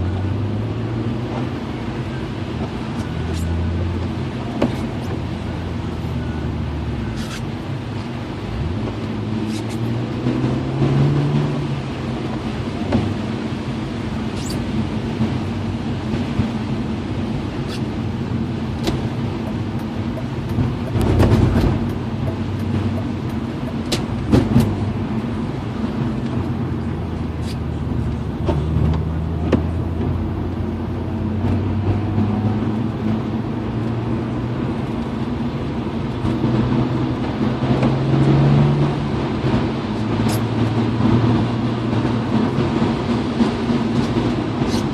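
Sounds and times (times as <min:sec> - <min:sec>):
car engine running: 0:00.0 - 0:44.9
road noise: 0:00.0 - 0:44.9.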